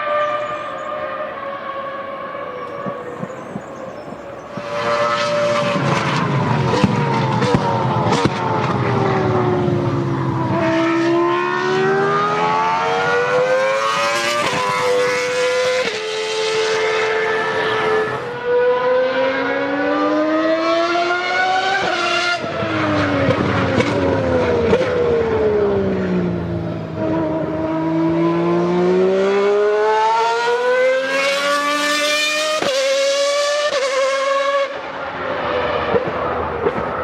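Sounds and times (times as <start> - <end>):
racing car engine at high revs: 0.0 - 3.8, 4.4 - 37.0.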